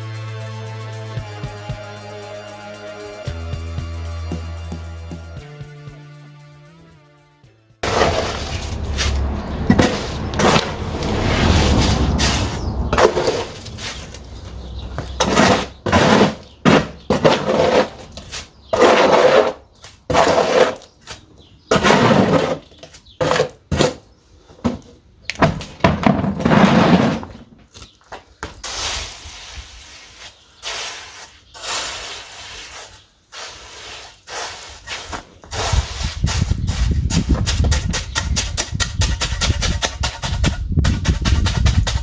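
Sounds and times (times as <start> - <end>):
rubble crunching knocks and scrapes: 7.8 - 28.7, 34.9 - 42.0.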